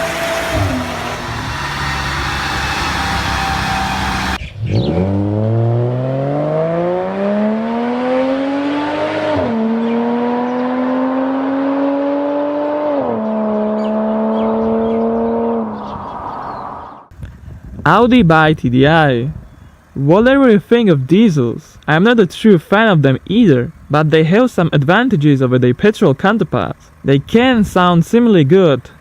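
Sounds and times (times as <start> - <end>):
car engine accelerating: 0.0 - 17.1
engine and road noise: 0.0 - 29.0.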